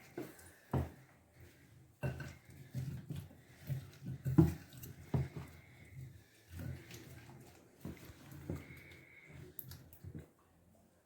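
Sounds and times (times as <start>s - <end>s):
spoon stirring fruit in a bowl: 0.0s - 10.2s.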